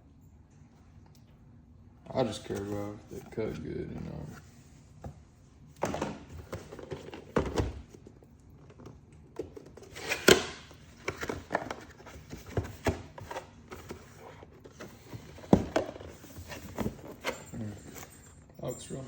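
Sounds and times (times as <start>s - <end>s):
packaging clicks and rustles: 8.6s - 18.2s.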